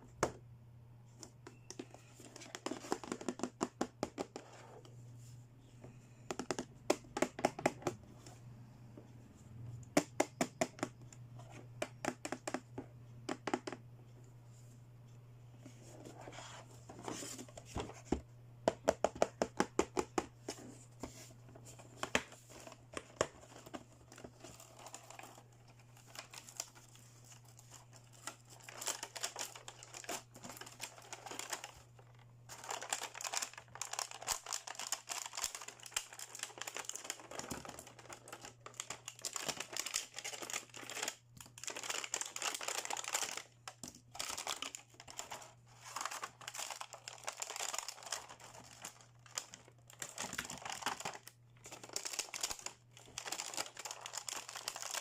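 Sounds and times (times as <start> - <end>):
low steady hum: 0.0 - 3.2, 4.0 - 55.0
plastic packaging crinkling and tearing: 22.4 - 55.0.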